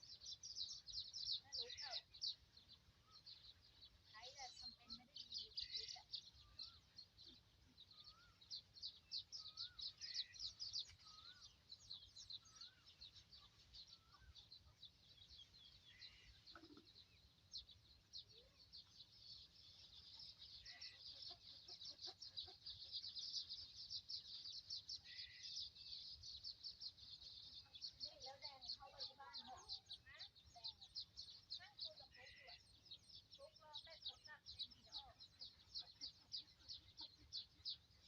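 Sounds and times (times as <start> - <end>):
dense high bird chirring: 0.0 - 38.0
short whistled bird calls: 9.4 - 11.6.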